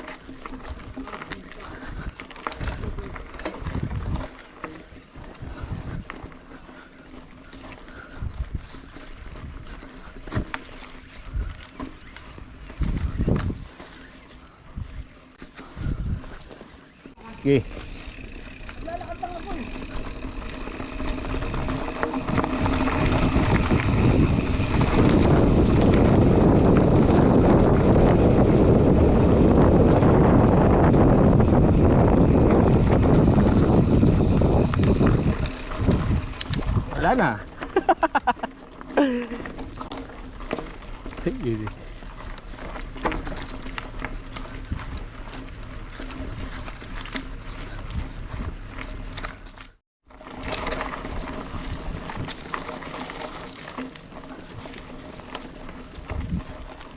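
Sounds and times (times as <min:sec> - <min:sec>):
wind rumbling on microphone: 0:00.0 - 0:16.6, 0:17.2 - 0:38.4, 0:39.0 - 0:56.9
bike clicking and rattling: 0:00.0 - 0:56.9
wind on microphone: 0:01.6 - 0:04.3, 0:05.2 - 0:06.2, 0:12.3 - 0:13.8, 0:14.6 - 0:16.4, 0:20.9 - 0:37.3, 0:56.0 - 0:56.8.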